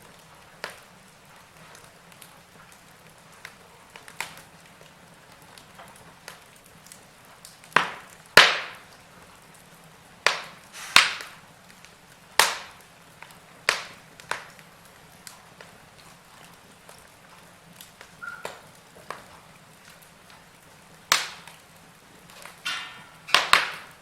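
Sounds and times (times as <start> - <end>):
wood fire hissing and crackling: 0.0 - 24.0
logs popping sharply: 7.8 - 8.8, 10.2 - 11.4.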